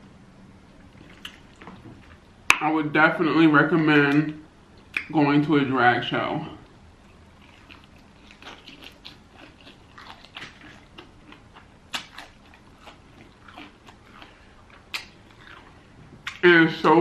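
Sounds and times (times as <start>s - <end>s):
chewing crispy chicken: 0.7s - 2.4s, 7.0s - 16.5s
wet mouth clicks: 13.6s - 15.6s.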